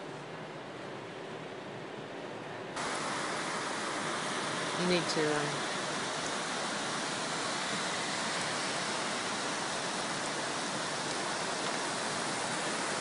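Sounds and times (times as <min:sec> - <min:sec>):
floodwater rushing: 0:02.8 - 0:13.0.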